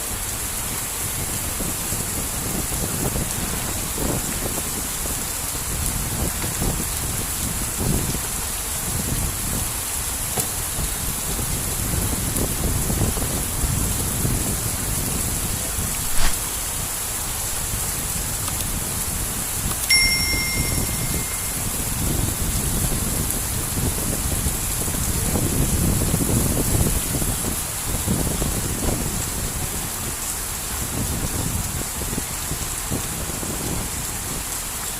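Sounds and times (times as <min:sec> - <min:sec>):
heavy rain falling: 0:00.0 - 0:34.9
wind rumbling on microphone: 0:00.0 - 0:34.9
sharp click: 0:16.1 - 0:16.4
short high beep: 0:19.9 - 0:21.7.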